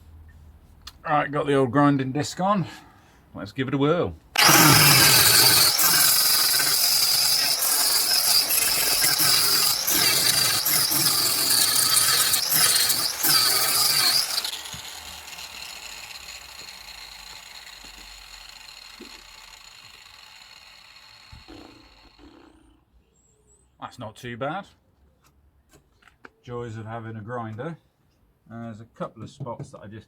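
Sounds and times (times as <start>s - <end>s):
grinder disc spinning down: 4.4s - 22.5s
angle grinder grinding metal: 4.4s - 22.6s.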